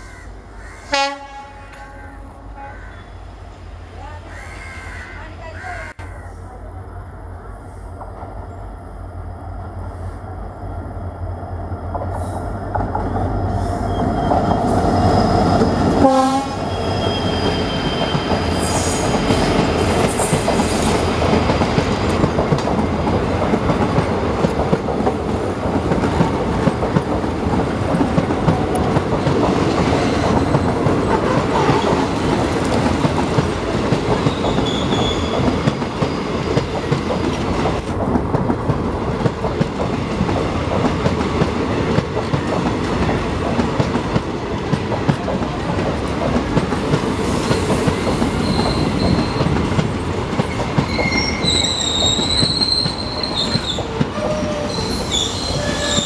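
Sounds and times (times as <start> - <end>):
train horn: 0.9 - 3.2, 15.9 - 17.2
train wheels clattering on rail joints: 17.8 - 56.0.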